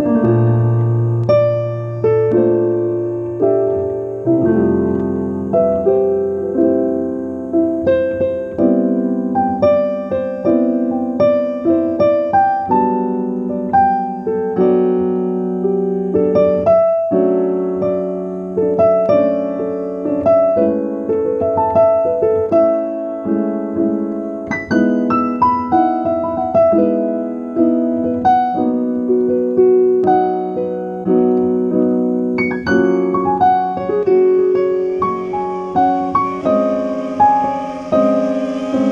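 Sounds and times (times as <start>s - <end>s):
solo piano music: 0.0s - 38.9s.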